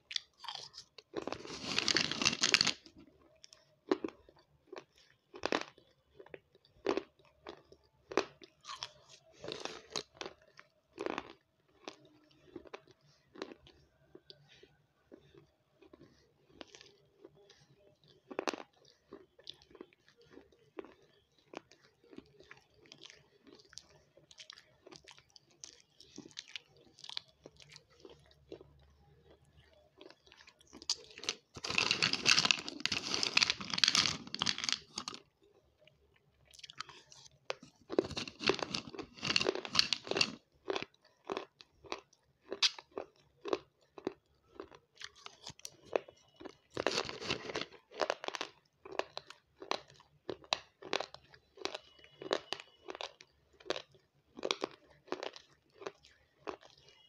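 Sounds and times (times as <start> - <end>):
soft chewing: 0.0 - 57.0
loud crunching bites: 0.1 - 2.9, 30.9 - 35.2, 37.9 - 40.4, 46.8 - 47.7.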